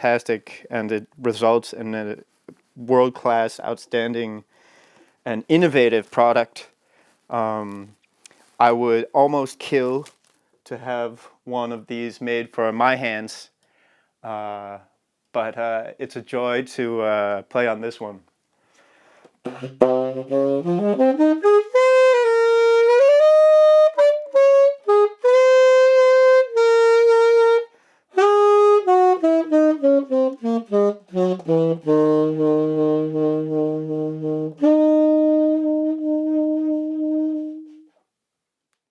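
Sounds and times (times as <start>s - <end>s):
tenor saxophone playing: 19.4s - 38.0s.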